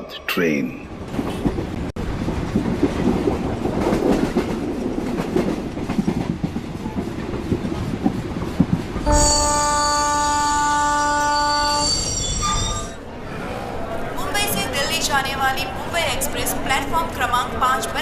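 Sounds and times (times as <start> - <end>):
train rumbling past: 0.7 - 18.0
locomotive horn: 9.0 - 13.0.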